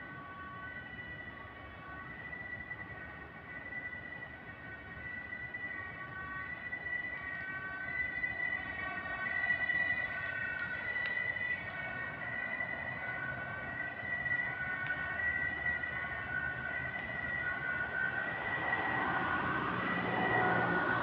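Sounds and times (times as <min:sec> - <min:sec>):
siren: 0:00.0 - 0:21.0.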